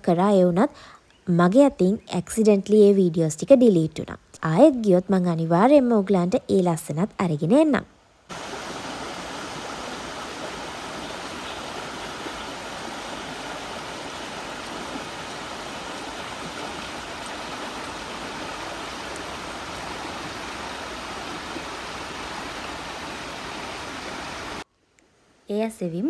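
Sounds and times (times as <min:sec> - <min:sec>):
stream flowing over stones: 0:08.3 - 0:24.6.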